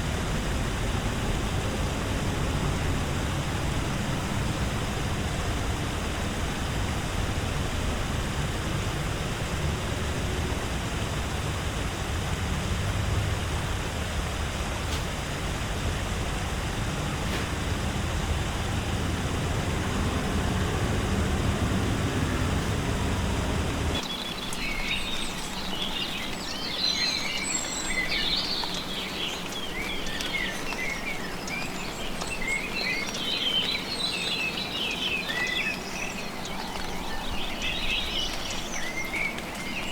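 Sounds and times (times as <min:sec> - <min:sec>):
low rushing noise: 0:00.0 - 0:24.0
birds chirping: 0:14.8 - 0:39.9.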